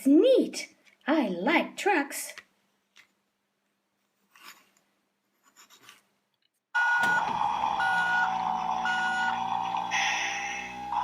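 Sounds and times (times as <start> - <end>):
reversing beeps: 6.8 - 9.5
recorded toy engine sound: 6.8 - 11.0.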